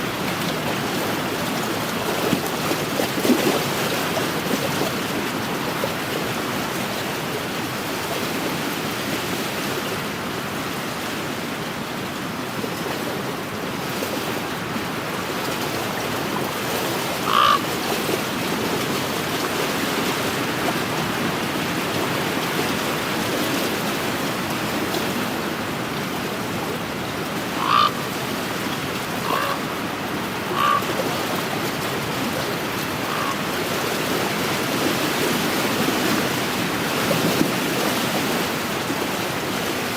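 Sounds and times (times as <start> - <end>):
waves washing on a shore: 0.0 - 39.9
short animal calls: 17.3 - 17.6, 27.6 - 27.9, 29.2 - 29.7, 30.5 - 30.9, 33.0 - 33.4.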